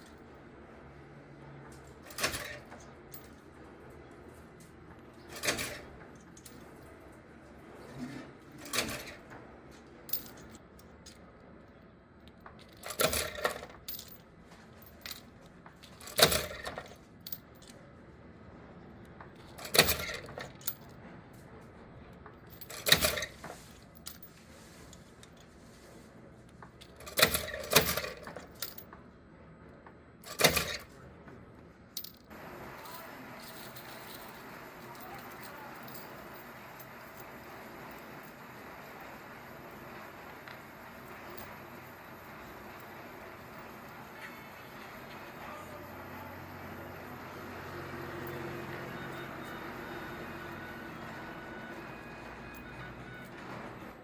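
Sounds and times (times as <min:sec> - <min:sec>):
small metal pieces clinking: 0:32.0 - 0:38.3.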